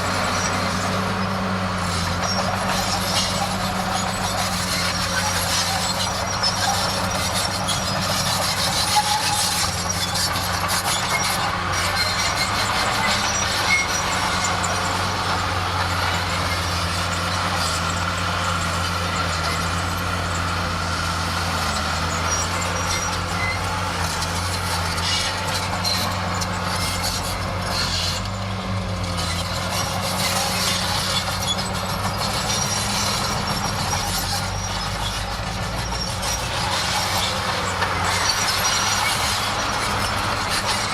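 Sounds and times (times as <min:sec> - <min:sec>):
diesel engine droning: 0:00.0 - 0:40.9
metal tracks clanking and rattling: 0:00.0 - 0:40.9
squealing: 0:29.3 - 0:40.9.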